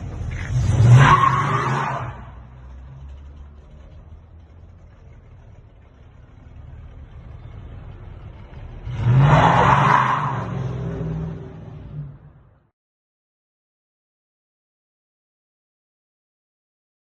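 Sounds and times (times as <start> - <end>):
car engine revving: 0.0 - 12.4.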